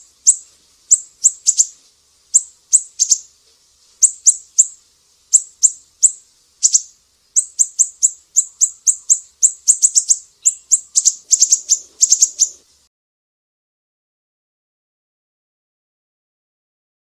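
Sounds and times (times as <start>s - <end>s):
songbird chirping: 0.0s - 12.7s.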